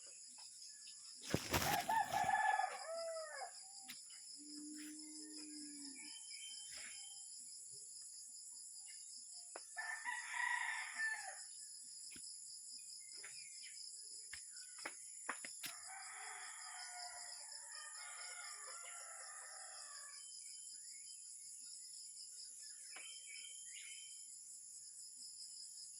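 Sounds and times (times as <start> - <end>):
rooster crowing: 1.6 - 3.6, 9.8 - 11.4, 15.8 - 20.2.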